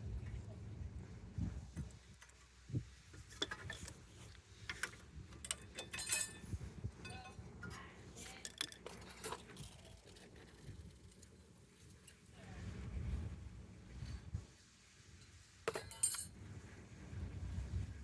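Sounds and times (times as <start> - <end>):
metal tools clinking and knocking: 4.8 - 10.6, 15.7 - 16.4
short metallic rings: 5.8 - 7.4, 15.7 - 16.3.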